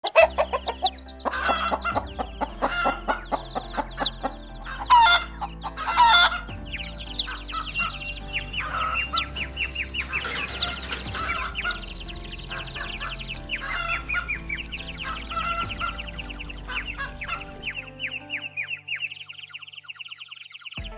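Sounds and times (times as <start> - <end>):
chickens clucking: 0.0 - 19.8
background music: 0.0 - 20.9.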